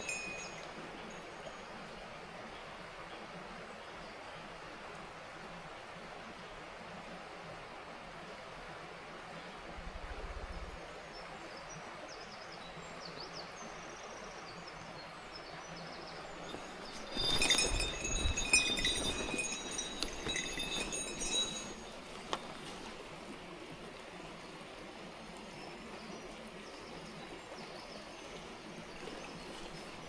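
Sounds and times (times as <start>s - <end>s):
high ringing tones: 0.0s - 1.7s, 16.3s - 22.1s
mountain stream rushing: 0.0s - 30.0s
rustling noise: 16.4s - 23.3s.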